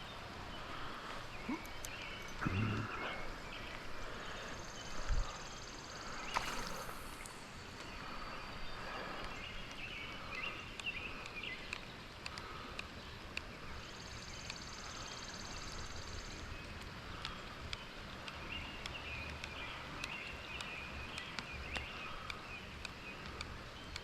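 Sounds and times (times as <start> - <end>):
low chirps: 0.5 - 11.7
rain hiss: 1.9 - 10.2
small ticks: 3.6 - 24.0.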